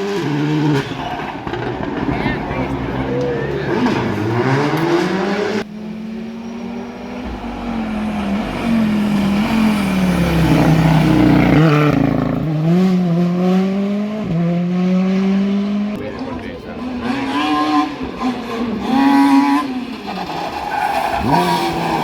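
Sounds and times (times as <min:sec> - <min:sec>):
rally car engines revving: 0:00.0 - 0:22.0.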